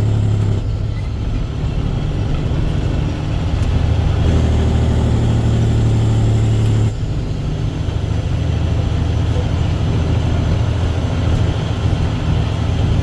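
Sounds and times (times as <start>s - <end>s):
diesel truck engine humming: 0.0s - 13.0s.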